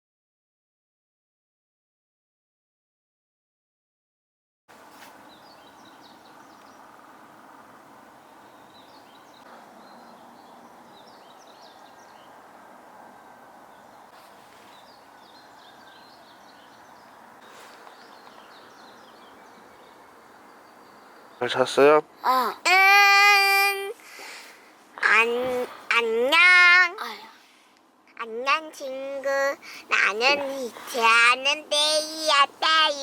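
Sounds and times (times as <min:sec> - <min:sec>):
steady background hiss: 0:04.7 - 0:33.0
small birds twittering: 0:04.8 - 0:22.5.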